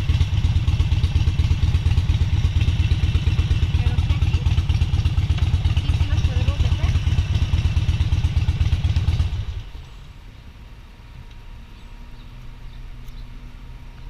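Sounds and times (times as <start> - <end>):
motorcycle engine running: 0.0 - 10.4
low rumble: 0.0 - 14.0.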